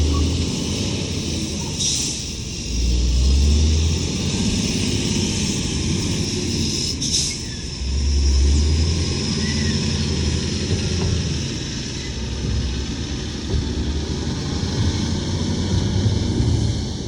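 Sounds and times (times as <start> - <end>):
air hiss: 0.0 - 8.6
heavy diesel engine rumbling: 0.0 - 17.0.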